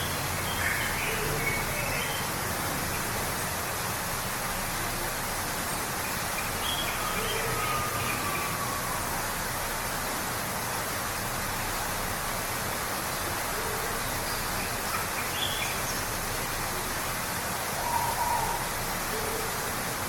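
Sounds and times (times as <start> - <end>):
waterfall rushing: 0.0 - 20.0
bird calls: 17.8 - 19.5.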